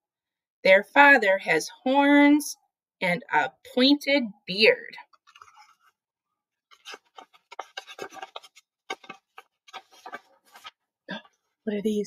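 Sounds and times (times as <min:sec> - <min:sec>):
book pages rustling and turning: 0:05.1 - 0:06.0, 0:06.7 - 0:10.9.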